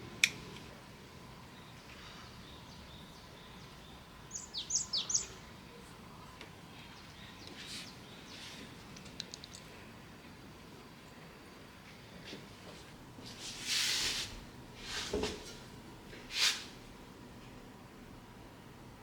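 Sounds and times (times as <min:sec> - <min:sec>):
bird chirping: 0:01.4 - 0:05.8.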